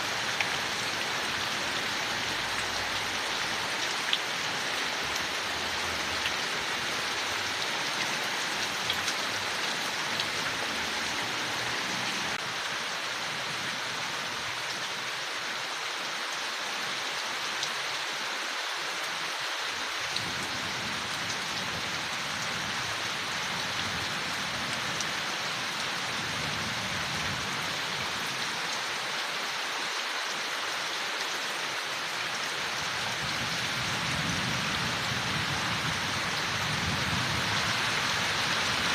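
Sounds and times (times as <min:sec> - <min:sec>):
rain falling on leaves: 0:00.0 - 0:38.9.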